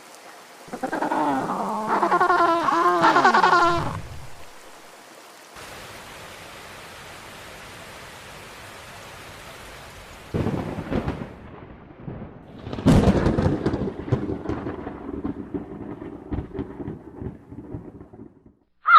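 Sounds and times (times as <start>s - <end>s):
steady rain hiss: 0.0s - 18.3s
heavy thunder rumbles: 10.3s - 18.6s.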